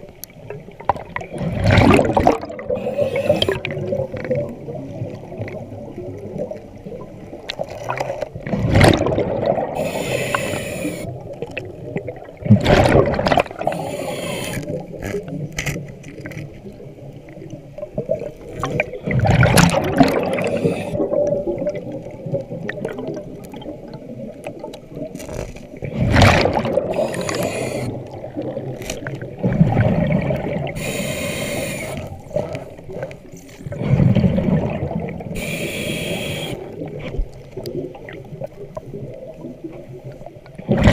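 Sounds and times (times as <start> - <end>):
exhaled bubbles rumbling: 0.0 - 31.0, 32.0 - 40.9
regulator hiss: 9.8 - 11.1, 13.7 - 14.6, 27.0 - 27.9, 30.8 - 32.0, 35.4 - 36.7.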